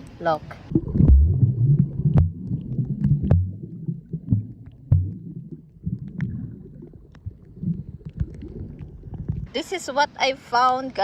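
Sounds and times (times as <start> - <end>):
wind buffeting microphone: 7.5 - 9.6.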